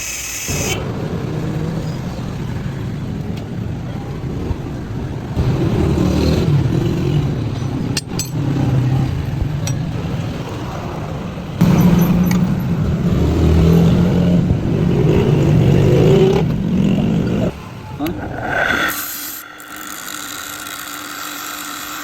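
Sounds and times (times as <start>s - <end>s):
metallic clinks of tools: 8.0s - 8.5s.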